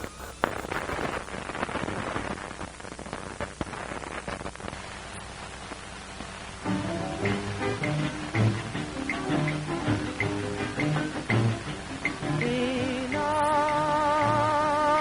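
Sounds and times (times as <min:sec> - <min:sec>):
clicks and pops: 0:00.0 - 0:01.3
film soundtrack hiss: 0:00.0 - 0:15.0.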